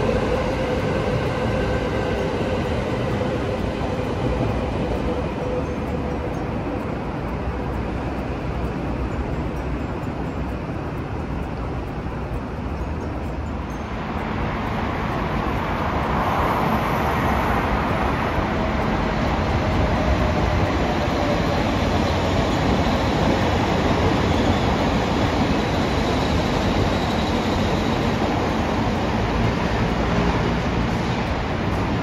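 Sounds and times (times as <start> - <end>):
train rushing past on rails: 0.0 - 32.0.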